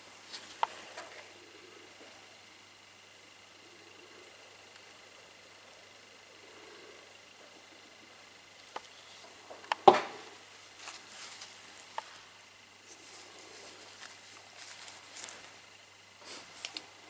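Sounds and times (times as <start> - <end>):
rustling and scraping: 0.0 - 1.3, 10.1 - 16.9.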